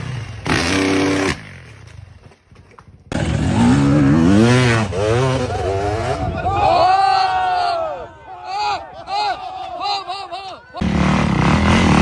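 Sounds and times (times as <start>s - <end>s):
motocross bike revving: 0.0s - 1.8s, 3.1s - 6.3s, 10.8s - 12.0s.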